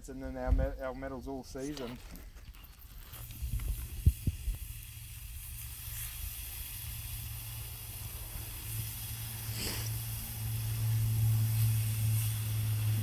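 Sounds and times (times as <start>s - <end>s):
oil sizzling on hot plate: 2.8s - 13.0s.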